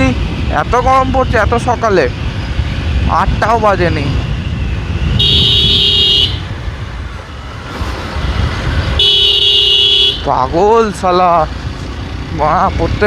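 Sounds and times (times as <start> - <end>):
traffic engines rumbling: 0.0 - 13.0
vehicle horn honking: 5.2 - 6.5, 9.0 - 10.3.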